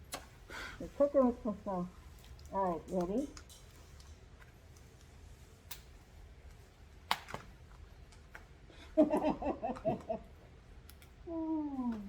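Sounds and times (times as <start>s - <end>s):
burst of laughter: 9.0s - 10.3s.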